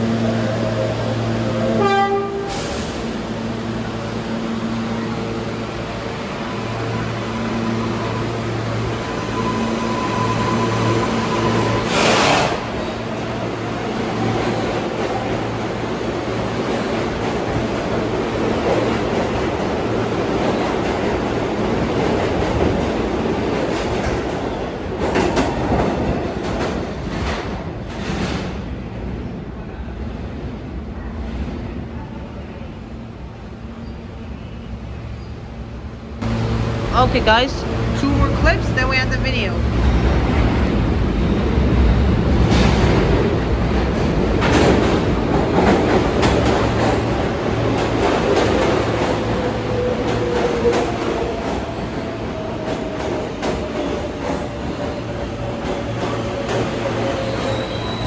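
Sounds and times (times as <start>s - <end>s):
subway train wheels on rails: 0.0s - 58.0s
sharp clacks of train wheels: 11.5s - 13.0s, 16.6s - 28.6s, 42.3s - 58.0s.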